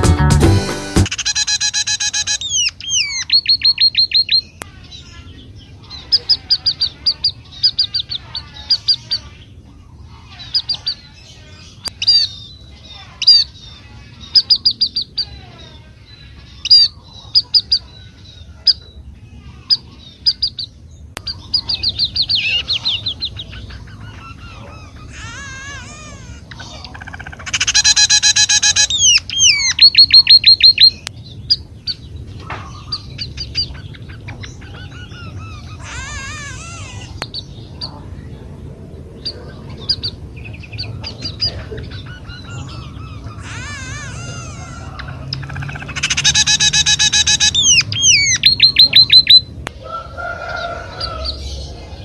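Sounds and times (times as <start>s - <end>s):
guitar tune: 0.0s - 1.1s
birds chirping rapidly: 0.9s - 52.0s
faint bird calls: 1.1s - 38.4s, 39.2s - 52.0s.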